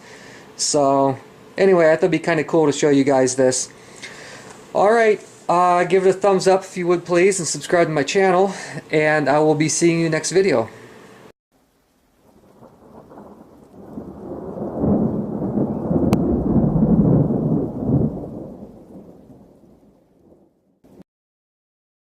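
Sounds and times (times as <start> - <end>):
low rumbling noise: 11.8 - 20.6.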